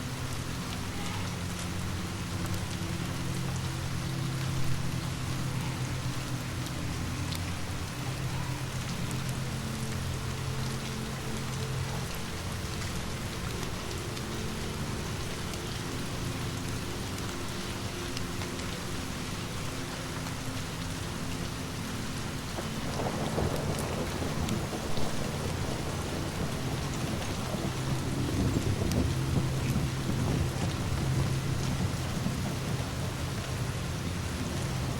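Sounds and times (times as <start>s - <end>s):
steady rain falling: 0.0s - 34.9s
wood fire crackling: 0.0s - 34.9s
distant thunder rumble: 22.6s - 34.9s.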